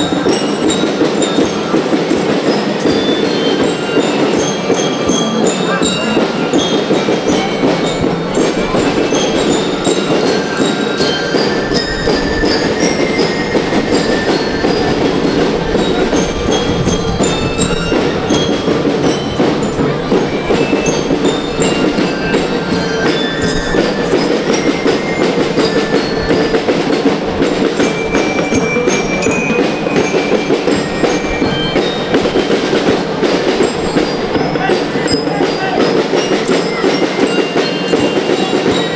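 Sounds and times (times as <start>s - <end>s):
bell-lyre melody in high notes: 0.0s - 38.9s
loud dense drumming: 0.0s - 38.9s.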